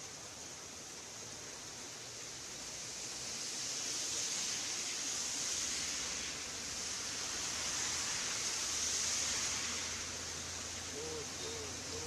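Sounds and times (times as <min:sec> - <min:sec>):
heavy rain on road: 0:02.3 - 0:12.0
traffic engine hum: 0:10.2 - 0:12.0.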